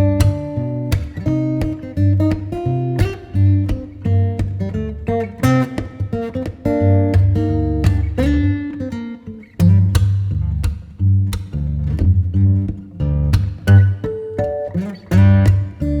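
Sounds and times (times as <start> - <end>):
bass line: 0.0 - 5.6, 6.6 - 8.6, 9.6 - 14.1
acoustic guitar: 0.0 - 16.0.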